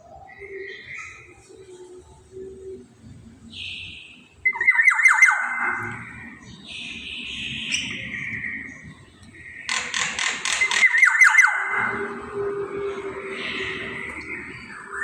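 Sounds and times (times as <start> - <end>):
bird squawking calls: 9.5 - 12.1.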